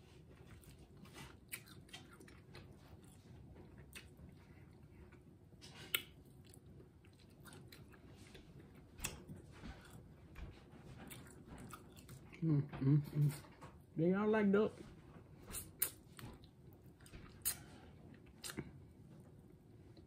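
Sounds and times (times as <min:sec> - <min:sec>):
chewing and mouth smacks: 0:00.3 - 0:12.4, 0:15.4 - 0:18.8.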